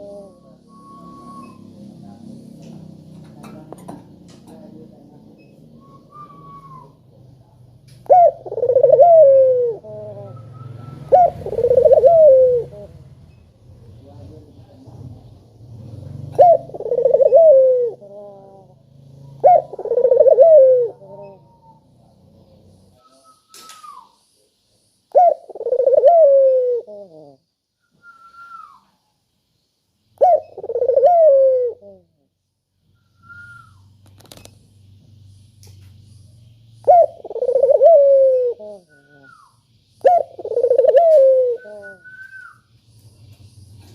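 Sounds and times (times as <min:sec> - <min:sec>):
dove cooing: 0:00.0 - 0:01.6, 0:08.0 - 0:13.2, 0:16.0 - 0:21.8, 0:25.1 - 0:27.4, 0:30.2 - 0:32.3, 0:36.8 - 0:42.6
faint falling whistles: 0:00.6 - 0:01.7, 0:05.8 - 0:07.0, 0:10.3 - 0:11.1, 0:23.0 - 0:24.2, 0:27.8 - 0:29.0, 0:33.0 - 0:34.0, 0:41.6 - 0:42.7.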